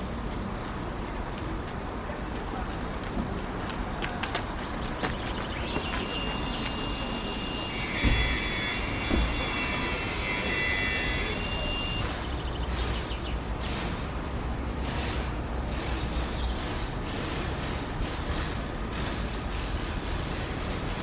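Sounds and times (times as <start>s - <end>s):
bird chirps: 4.7s - 7.6s.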